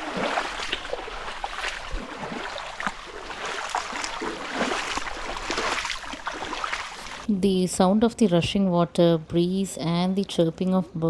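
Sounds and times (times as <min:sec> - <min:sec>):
rushing water: 0:00.0 - 0:07.3.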